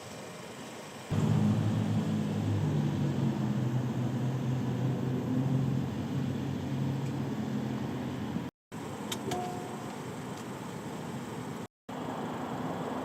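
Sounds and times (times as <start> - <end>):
road noise inside car: 0.0 - 13.0
car engine drone: 0.8 - 13.0.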